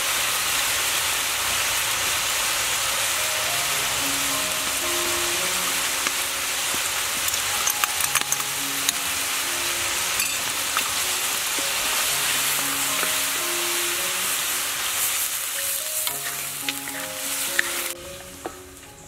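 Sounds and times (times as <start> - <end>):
chicken sizzling in hot pan: 0.0 - 18.8
wooden spatula scraping ticks: 15.6 - 18.0.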